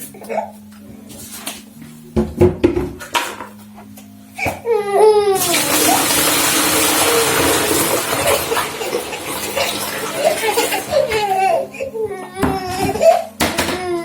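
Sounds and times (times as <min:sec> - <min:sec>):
water running from a tap: 0:05.4 - 0:11.5
child whining: 0:10.8 - 0:14.0.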